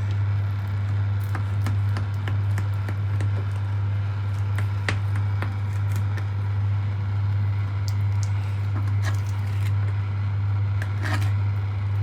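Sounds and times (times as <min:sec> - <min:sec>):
steady low hum: 0:00.0 - 0:12.0
knife cutting on a board: 0:10.8 - 0:11.4.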